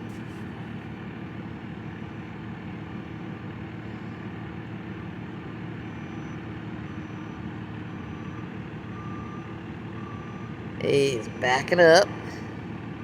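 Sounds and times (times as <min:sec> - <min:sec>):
truck engine running: 0:00.0 - 0:13.0
reversing beeps: 0:05.7 - 0:10.6.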